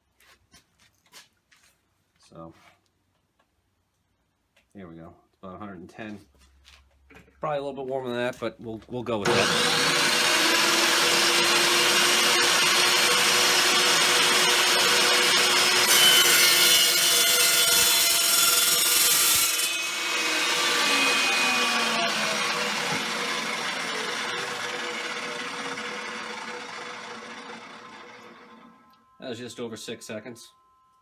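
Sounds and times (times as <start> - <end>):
saw blade winding down whine: 9.2 - 30.2
cold saw cutting steel: 9.2 - 30.4.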